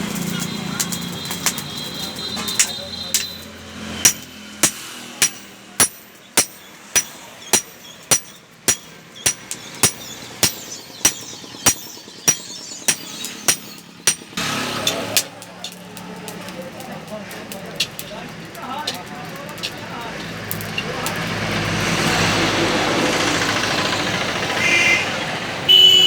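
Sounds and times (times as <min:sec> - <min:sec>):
hammer striking metal on anvil: 0:02.5 - 0:15.8.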